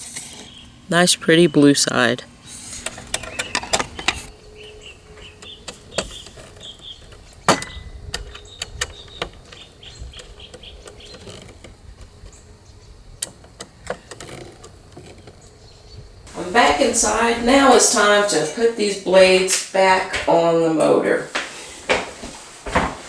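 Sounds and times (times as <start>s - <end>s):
objects clicking and knocking: 2.8s - 4.3s.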